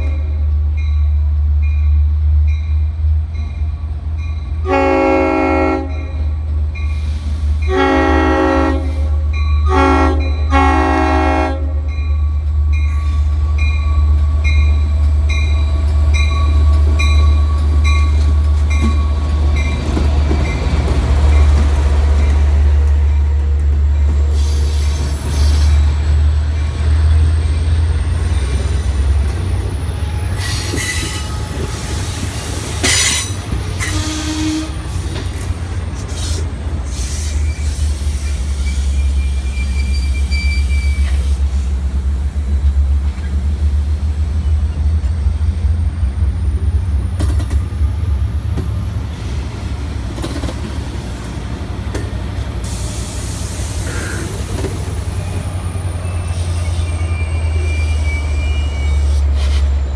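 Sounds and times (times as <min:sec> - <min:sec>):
train rolling past rumbling: 0:00.0 - 0:59.9
faint wheel squeal: 0:36.9 - 0:41.4, 0:55.2 - 0:59.7.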